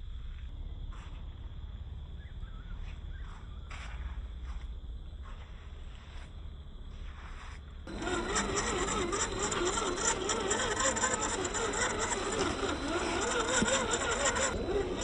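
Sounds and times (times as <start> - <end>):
toy car motor whining: 7.9 - 15.0.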